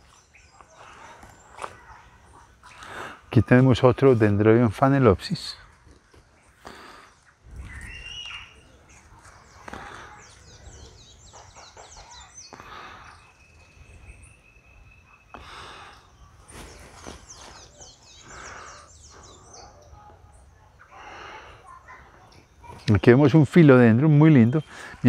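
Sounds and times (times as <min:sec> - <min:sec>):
high bird chirping: 0:06.4 - 0:25.0
steady high bird whistle: 0:07.6 - 0:08.7, 0:13.1 - 0:16.1
faint rustling: 0:16.3 - 0:17.9.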